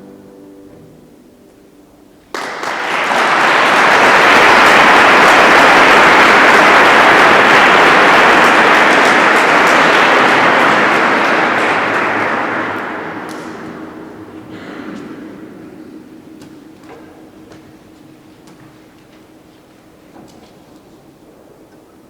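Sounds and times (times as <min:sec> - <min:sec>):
audience applauding: 0:02.3 - 0:21.3
final music chord: 0:09.7 - 0:20.1.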